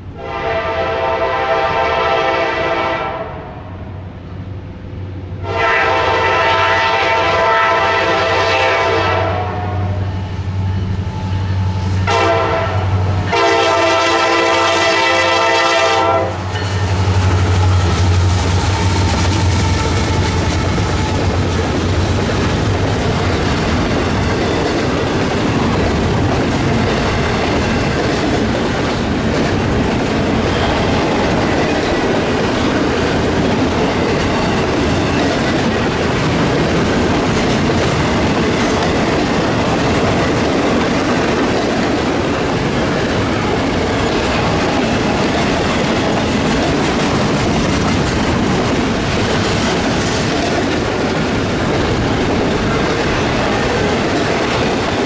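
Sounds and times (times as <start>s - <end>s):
locomotive horn blasts: 0.2s - 3.6s, 5.4s - 10.2s, 12.0s - 16.5s
locomotive engines rumbling: 4.0s - 55.0s
train wheels on rails: 4.0s - 55.0s.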